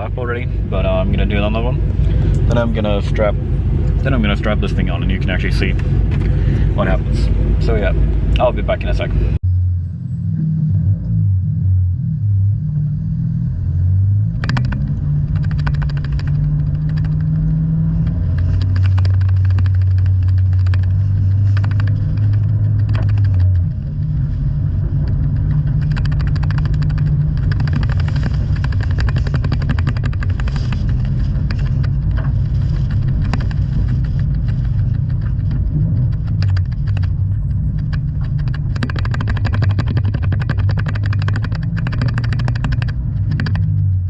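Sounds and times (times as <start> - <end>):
car engine running hard: 0.0 - 44.0
sharp ticks and knocks: 14.3 - 24.2, 24.8 - 44.0.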